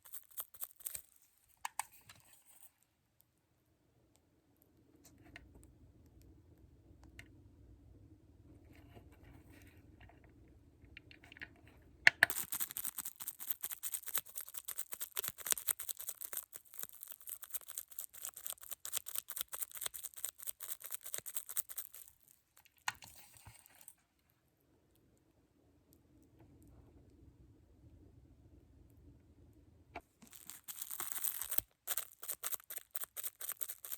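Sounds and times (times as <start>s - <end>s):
rapid crackling clicks and taps: 0.0s - 2.3s, 10.9s - 23.1s, 30.0s - 33.9s
faint steady hum: 0.0s - 33.9s.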